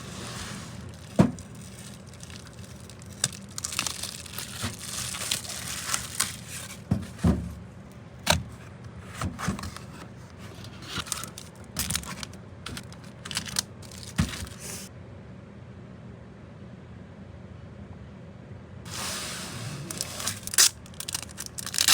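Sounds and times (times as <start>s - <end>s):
wrapping crinkling and tearing: 0.1s - 6.9s, 9.5s - 14.9s, 19.8s - 21.9s.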